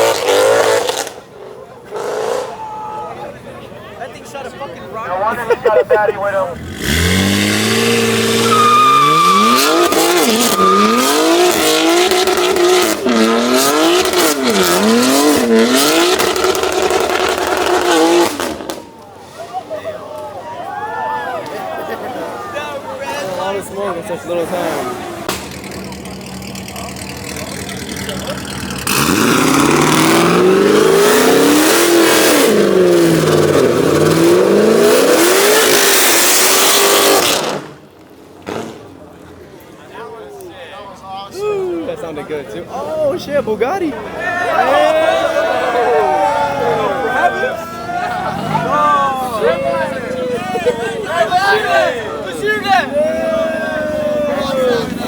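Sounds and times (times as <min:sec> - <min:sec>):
car engine revving hard: 0:00.0 - 0:02.6, 0:06.5 - 0:18.8, 0:24.3 - 0:38.9
loud exhaust rush: 0:00.0 - 0:20.4, 0:22.2 - 0:55.0
tyre squeal: 0:07.8 - 0:13.4.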